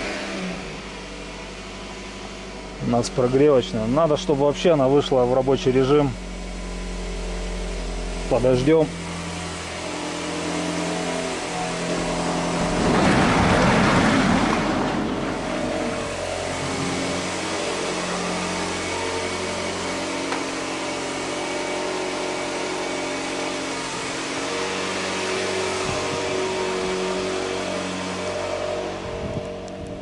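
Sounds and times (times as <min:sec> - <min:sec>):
car engine idling: 0:00.0 - 0:30.0
loud rushing noise: 0:10.5 - 0:20.1.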